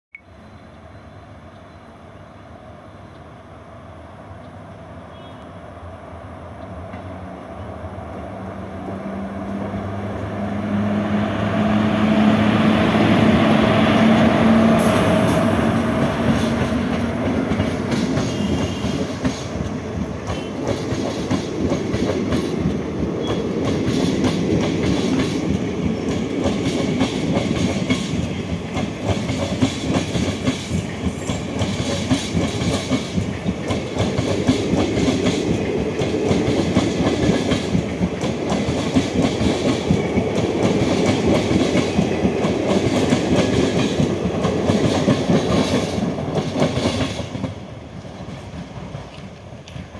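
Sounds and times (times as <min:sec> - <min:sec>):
train wheels clattering on rails: 0:12.0 - 0:49.9.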